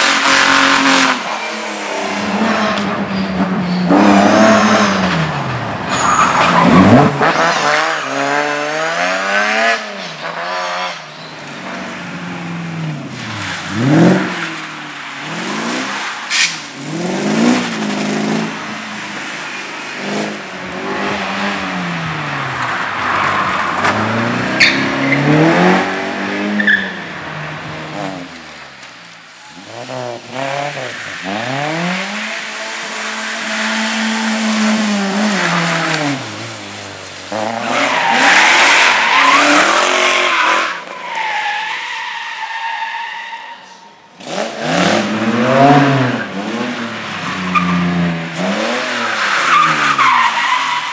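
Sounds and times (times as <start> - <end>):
car engine revving hard: 23.8 - 26.7.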